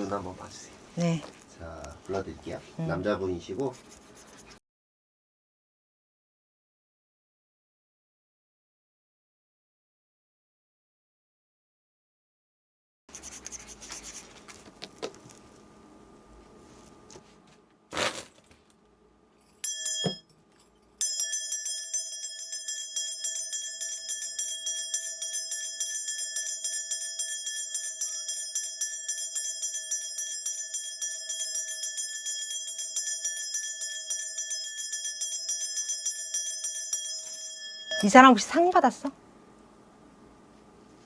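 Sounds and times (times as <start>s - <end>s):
bells jingling: 19.6s - 39.0s.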